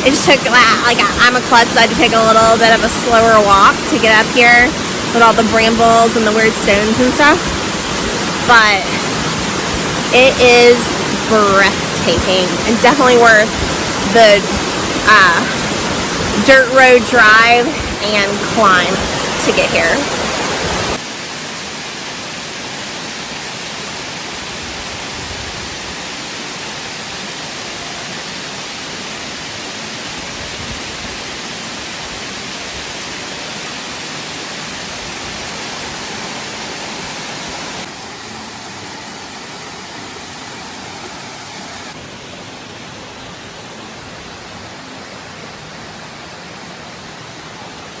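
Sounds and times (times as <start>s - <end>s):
waterfall roaring: 0.0s - 48.0s.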